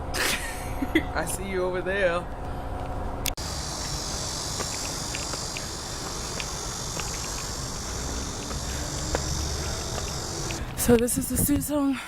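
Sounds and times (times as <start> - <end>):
low outdoor rumble: 2.3 - 11.7
insects chirping: 3.4 - 11.1.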